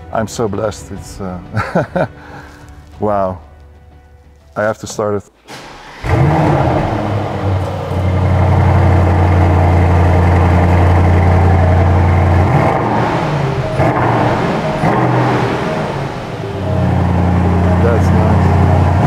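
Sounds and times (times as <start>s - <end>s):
car engine starting and idling: 5.3s - 19.0s.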